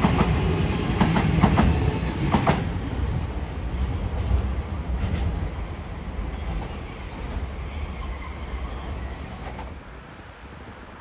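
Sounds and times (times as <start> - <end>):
train rail rumble: 0.0 - 11.0.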